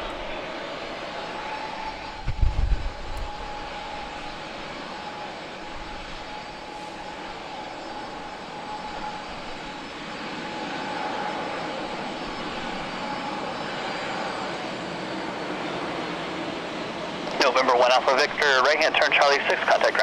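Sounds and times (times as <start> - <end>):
jet engines running: 0.0 - 20.0.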